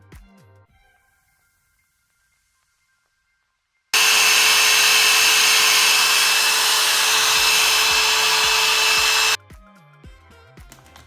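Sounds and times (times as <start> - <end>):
hair dryer running: 4.0 - 9.4.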